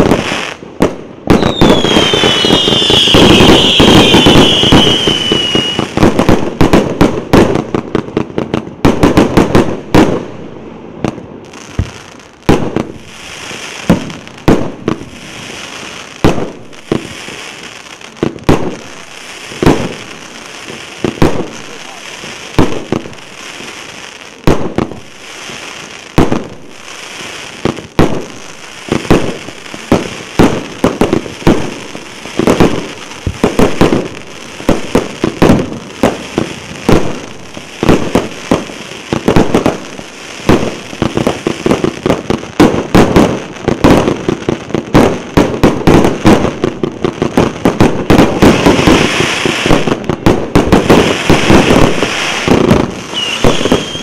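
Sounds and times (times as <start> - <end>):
aerial firework bursts: 0.0 - 7.7, 8.8 - 54.0
firework crackling: 0.0 - 54.0
firework launch thumps: 11.8 - 12.8.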